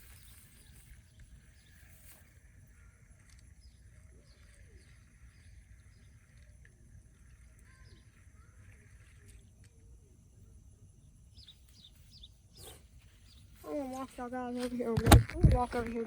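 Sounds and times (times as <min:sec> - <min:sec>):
faint bird chirps and calls: 0:00.0 - 0:16.0.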